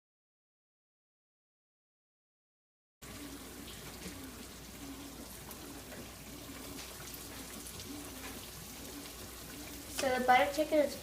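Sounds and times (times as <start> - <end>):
sauce bubbling in a pan: 3.0 - 11.0.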